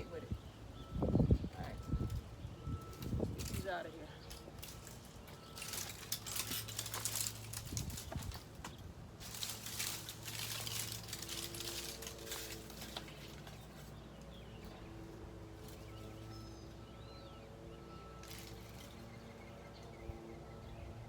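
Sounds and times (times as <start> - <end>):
dead branches crackling and snapping: 1.8 - 16.8, 18.2 - 20.0.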